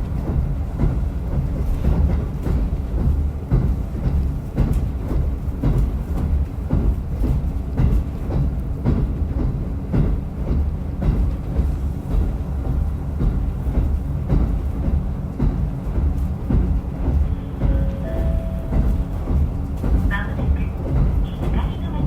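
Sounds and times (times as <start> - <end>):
rail-joint clacks: 0.0 - 22.0
low engine drone: 5.1 - 22.0.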